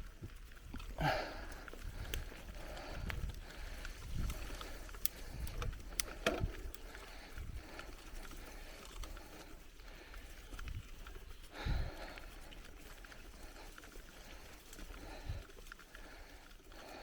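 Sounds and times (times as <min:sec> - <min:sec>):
bicycle tyres rolling on dirt: 0:00.0 - 0:17.0
bike clicks and rattles: 0:00.0 - 0:17.0.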